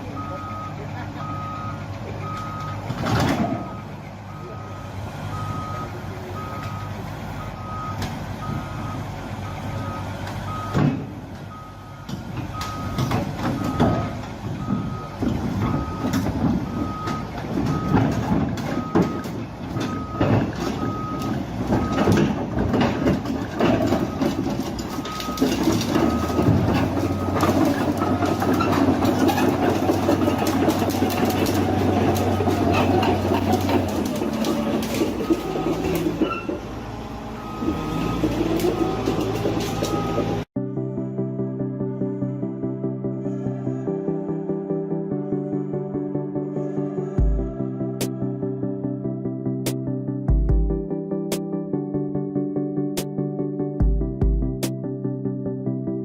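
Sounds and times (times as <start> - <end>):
truck reversing alarm beeping: 0.0 - 40.5
truck engine droning: 0.0 - 50.8.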